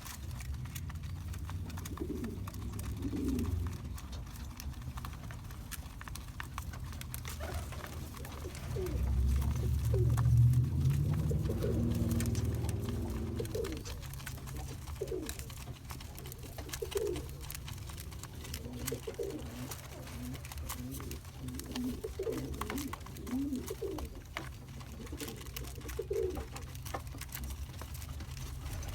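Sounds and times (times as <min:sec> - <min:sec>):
pigeons cooing: 0:00.0 - 0:28.9
low rumble: 0:08.3 - 0:14.2.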